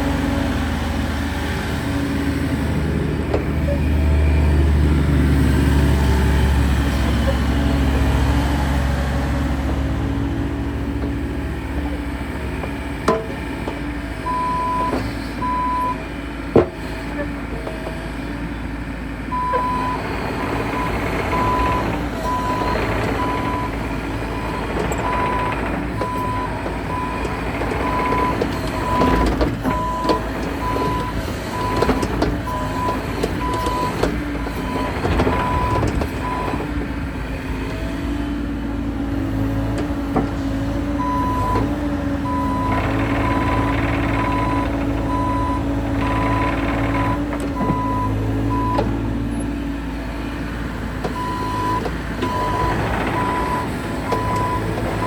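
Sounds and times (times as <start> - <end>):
excavator diesel engine running: 0.0 - 55.0
travel alarm beeping: 42.3 - 48.9.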